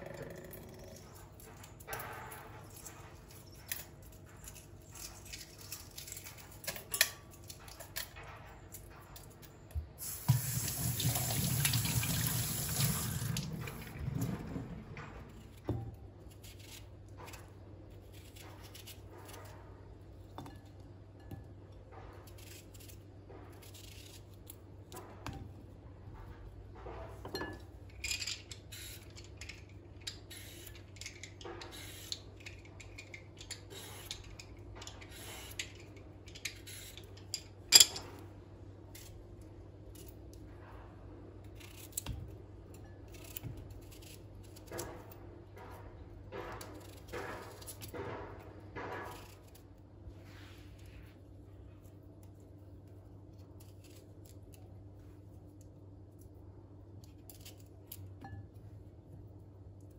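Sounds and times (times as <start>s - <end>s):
kitchen tap running: 10.0s - 14.8s.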